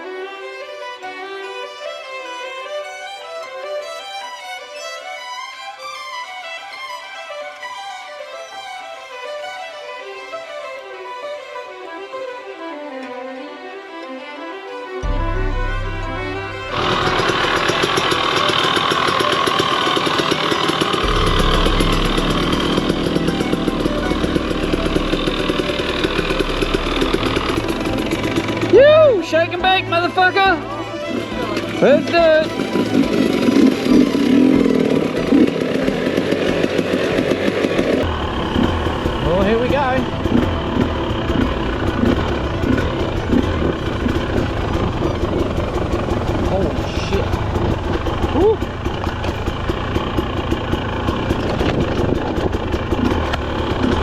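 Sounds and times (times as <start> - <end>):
dirt bike engine running: 15.0 - 54.0.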